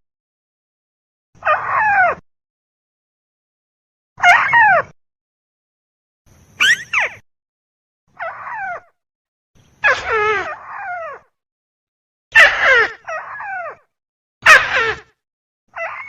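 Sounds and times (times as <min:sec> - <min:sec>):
bird harsh rapid calls: 0:06.6 - 0:07.2.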